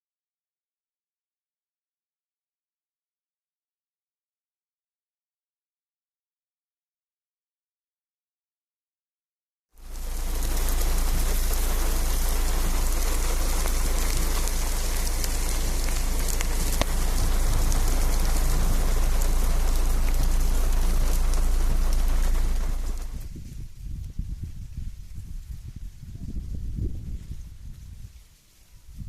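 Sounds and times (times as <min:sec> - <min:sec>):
heavy rain: 0:09.8 - 0:24.1
deep low rumble: 0:09.8 - 0:28.2.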